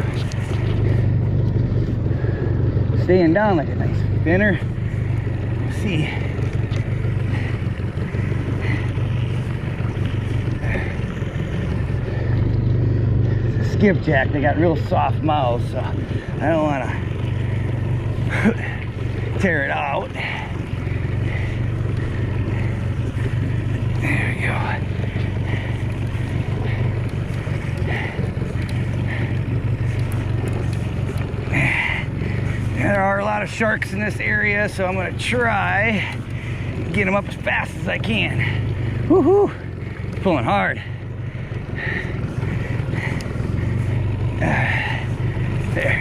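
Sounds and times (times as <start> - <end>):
boat motor humming: 0.0 - 46.0
water noise: 0.0 - 46.0
wind: 0.0 - 46.0.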